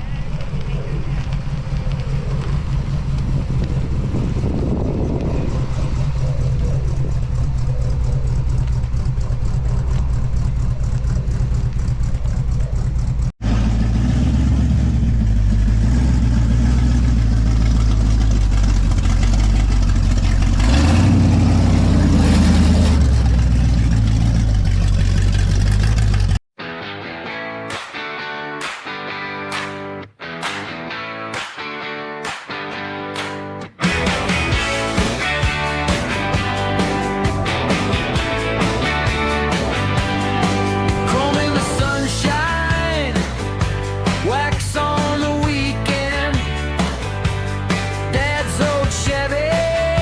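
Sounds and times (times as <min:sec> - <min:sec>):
car engine running: 0:00.0 - 0:26.4, 0:33.8 - 0:49.5.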